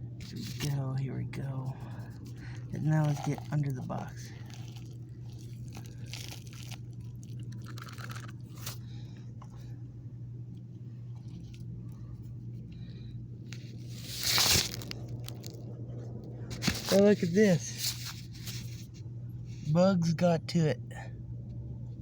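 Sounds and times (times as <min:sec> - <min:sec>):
steady low hum: 0:00.0 - 0:22.0
dirt crunching and scraping: 0:02.3 - 0:04.8, 0:16.5 - 0:18.9.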